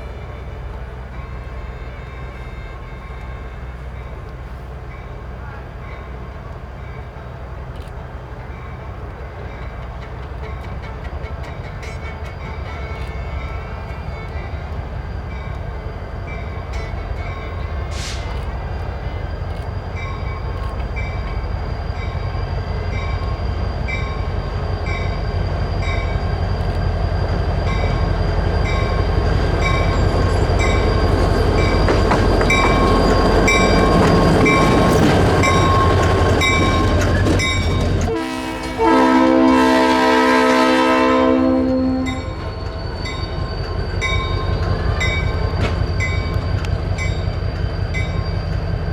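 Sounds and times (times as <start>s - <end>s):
diesel locomotive running: 0.0s - 48.9s
locomotive horn chord: 38.0s - 42.5s.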